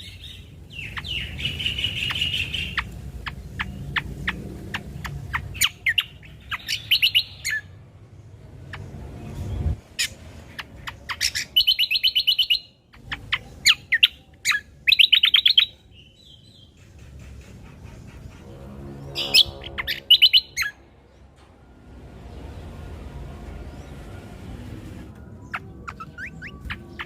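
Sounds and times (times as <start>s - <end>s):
bird whistling and trilling: 4.7s - 7.7s, 10.0s - 15.8s, 19.3s - 20.8s, 25.4s - 27.0s.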